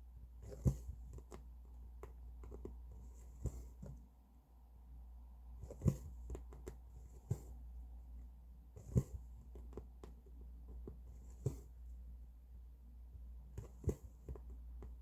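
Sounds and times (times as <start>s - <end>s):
low steady hum: 0.0s - 15.0s
needle and thread through fabric: 0.4s - 4.1s, 5.6s - 12.0s, 13.5s - 15.0s.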